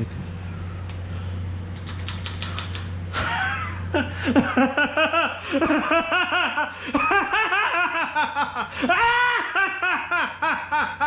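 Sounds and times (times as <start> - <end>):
sharp clicks: 1.7 - 2.9
person laughing hard: 3.1 - 11.0.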